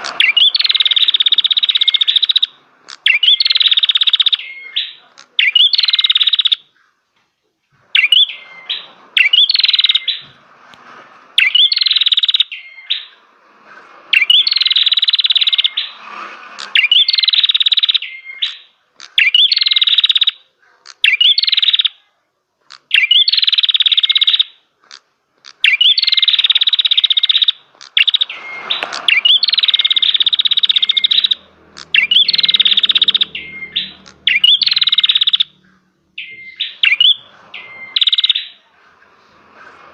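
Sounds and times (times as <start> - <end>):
bird singing rapid trills: 0.2 - 6.6, 8.0 - 10.2, 11.4 - 13.2, 14.1 - 16.0, 16.6 - 20.4, 21.0 - 22.0, 22.9 - 24.5, 25.6 - 38.7.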